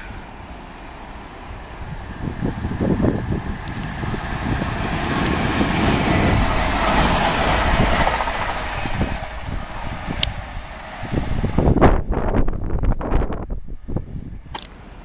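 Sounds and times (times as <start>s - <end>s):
electric train passing: 0.0s - 15.0s
sharp click: 14.5s - 14.8s.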